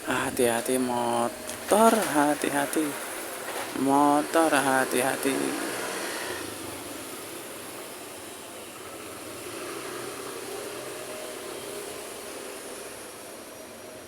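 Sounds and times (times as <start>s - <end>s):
traffic passing on city street: 0.0s - 14.0s.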